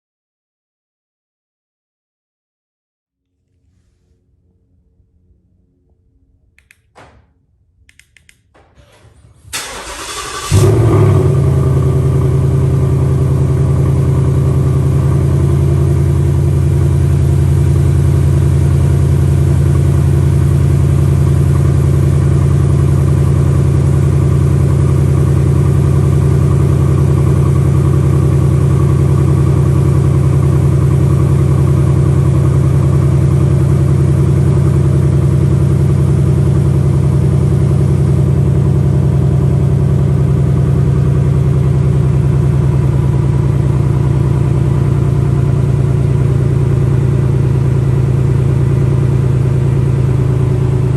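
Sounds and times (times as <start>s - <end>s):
car engine idling: 8.8s - 50.9s.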